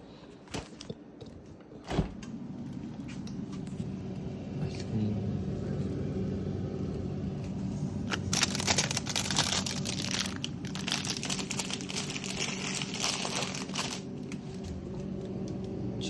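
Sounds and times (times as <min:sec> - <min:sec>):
steady low hum: 0:00.0 - 0:16.0
plastic packaging crinkling: 0:08.0 - 0:14.8.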